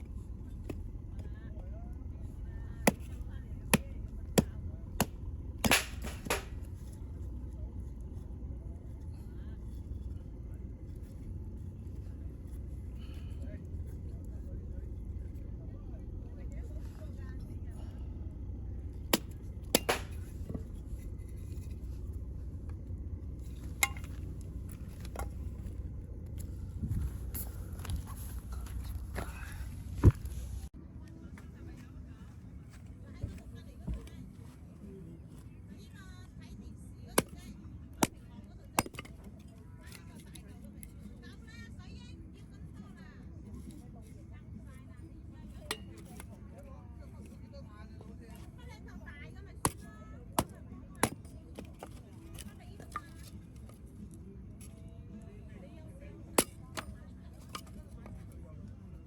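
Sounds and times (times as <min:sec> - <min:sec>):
steady low rumble: 0:00.0 - 0:39.8.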